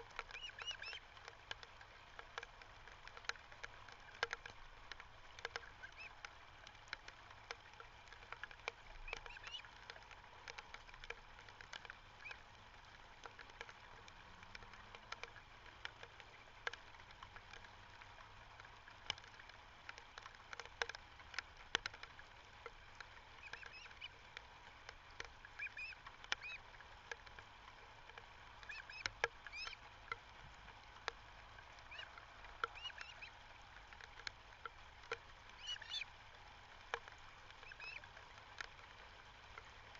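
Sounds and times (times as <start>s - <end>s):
faint clicks and crackle: 0.0s - 39.9s
birds chirping: 0.3s - 1.0s, 31.9s - 33.3s, 35.6s - 36.0s.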